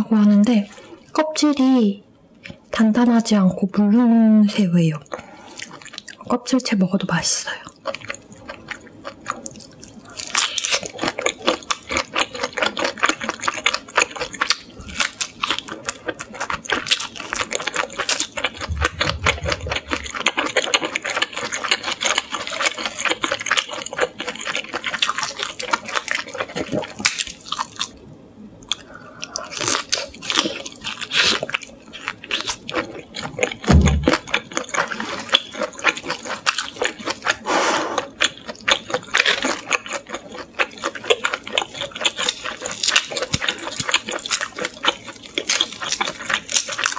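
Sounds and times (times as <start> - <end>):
chewing with wet mouth clicks: 5.0 - 6.3, 7.6 - 28.0, 28.6 - 37.4, 38.0 - 46.9
short low thumps: 18.7 - 20.1.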